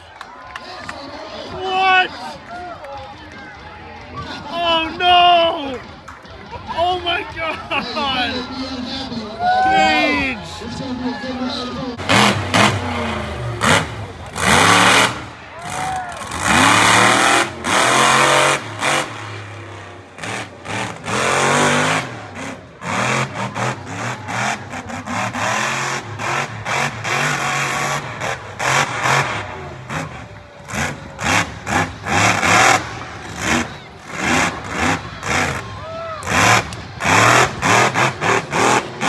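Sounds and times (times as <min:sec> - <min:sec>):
truck engine revving: 0:10.1 - 0:39.0.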